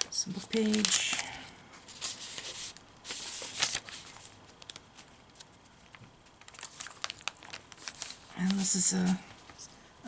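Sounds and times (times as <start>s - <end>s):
paper pages rustling: 0.0s - 9.8s.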